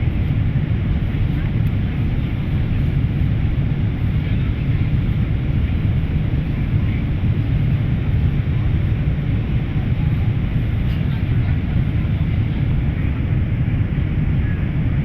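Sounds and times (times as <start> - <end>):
airliner cabin hum: 0.0 - 15.0.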